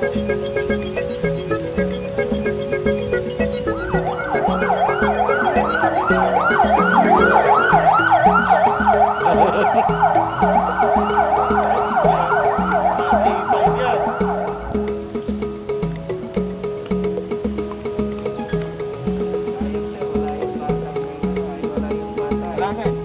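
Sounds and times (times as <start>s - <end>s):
emergency siren yelping: 0.0s - 15.2s
background music: 0.0s - 23.0s.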